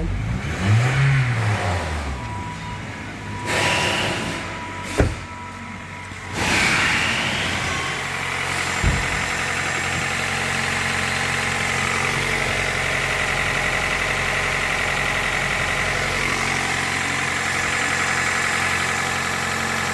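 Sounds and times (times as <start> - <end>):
car engine idling: 0.0 - 19.9
knock: 8.8 - 9.2.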